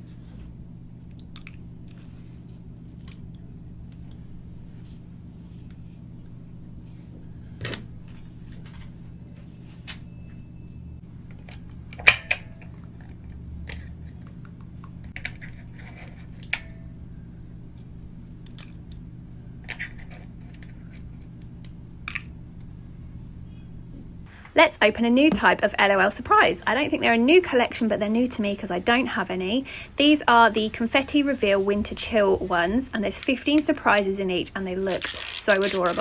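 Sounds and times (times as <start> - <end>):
steady low hum: 0.0 - 36.0
plastic crinkle: 34.8 - 36.0.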